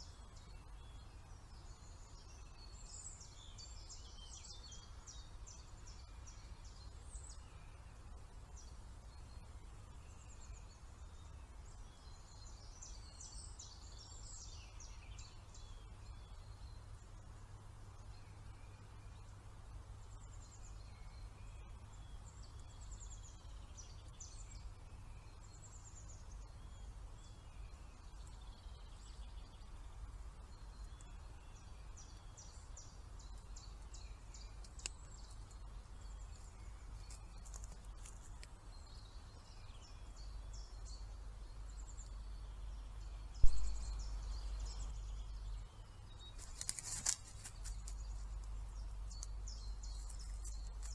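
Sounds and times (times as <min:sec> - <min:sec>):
small birds chirping: 0:00.0 - 0:50.9
steady low rumble: 0:38.8 - 0:46.2
loud thump: 0:43.4 - 0:43.9.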